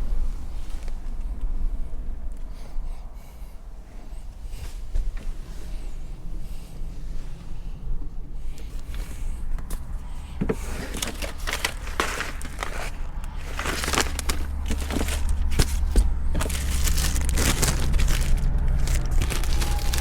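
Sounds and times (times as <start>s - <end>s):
gear being handled: 10.4s - 20.0s.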